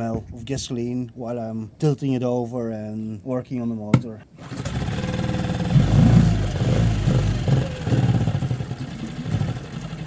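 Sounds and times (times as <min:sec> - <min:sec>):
outboard motor surging: 0:04.4 - 0:10.0.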